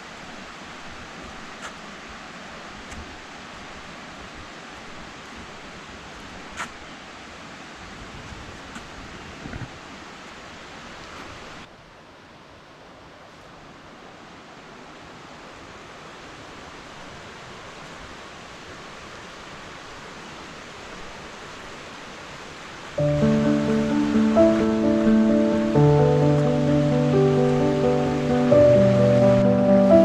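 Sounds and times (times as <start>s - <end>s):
waterfall rushing: 19.1s - 30.0s
music: 23.0s - 30.0s.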